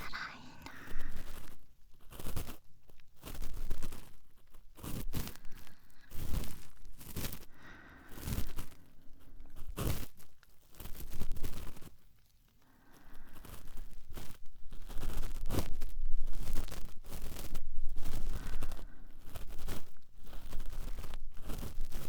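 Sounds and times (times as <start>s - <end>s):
cotton swab scratching in ear: 0.0s - 7.4s, 13.4s - 22.0s.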